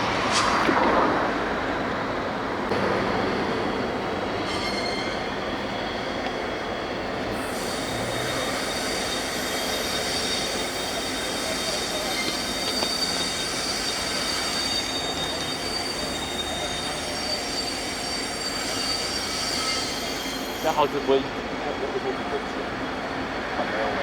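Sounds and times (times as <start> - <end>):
train rolling noise: 0.0 - 24.0
railway wheels squealing: 2.7 - 24.0.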